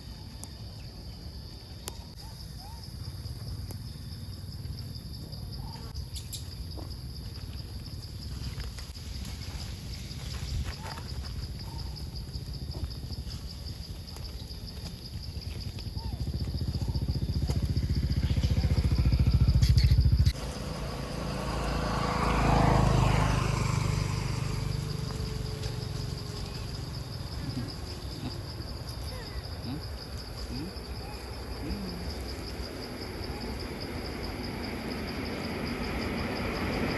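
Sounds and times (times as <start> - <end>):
motor running close by: 16.2 - 26.4
vehicle passing: 17.6 - 27.6, 34.0 - 36.9.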